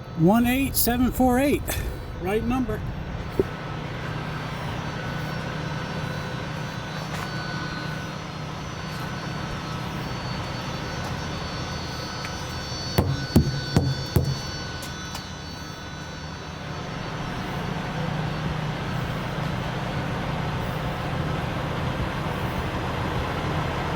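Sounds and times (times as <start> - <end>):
sharp metallic knocks: 13.0 - 14.6.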